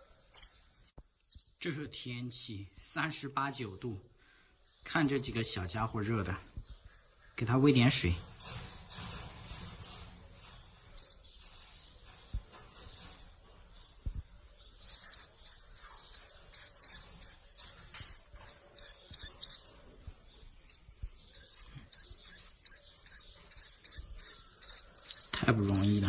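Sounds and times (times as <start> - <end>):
nestlings chirping: 0.0 - 1.6, 9.8 - 26.0.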